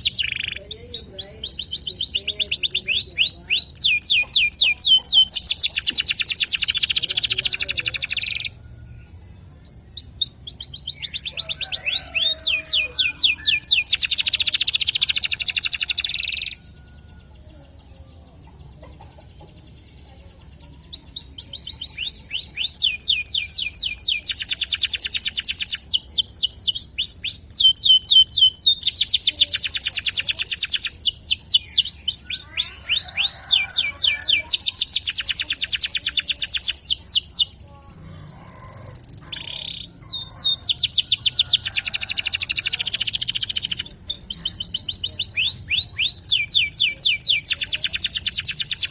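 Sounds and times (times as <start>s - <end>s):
canary singing trills: 0.0s - 48.9s.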